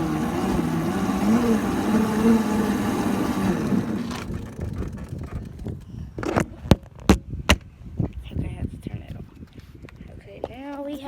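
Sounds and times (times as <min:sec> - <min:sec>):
electric motor whining: 0:00.0 - 0:05.6
wind noise: 0:02.6 - 0:11.0.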